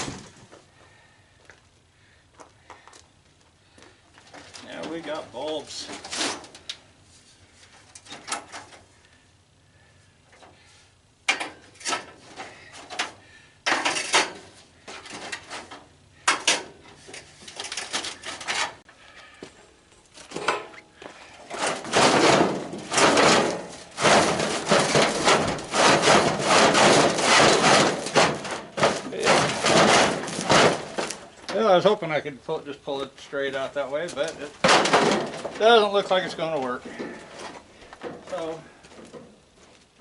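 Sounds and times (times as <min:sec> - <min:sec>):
metal parts scraping and clattering: 0:04.3 - 0:06.7, 0:11.3 - 0:18.8, 0:21.4 - 0:31.6.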